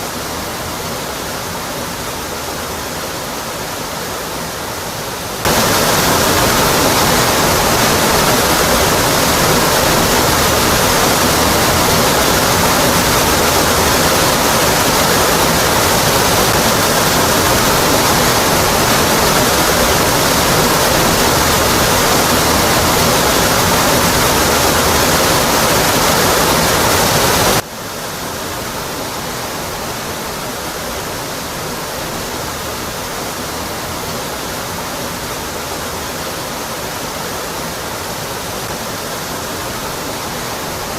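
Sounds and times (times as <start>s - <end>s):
waterfall crashing onto rock: 5.4s - 27.7s.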